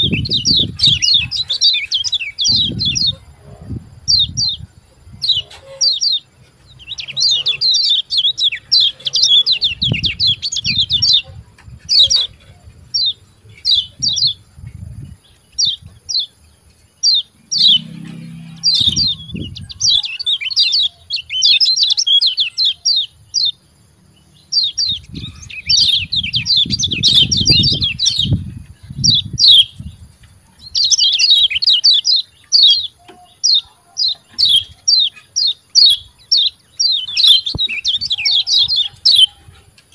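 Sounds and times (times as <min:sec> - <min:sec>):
bird chirping: 0:00.0 - 0:39.9
low rumbles: 0:16.7 - 0:20.0.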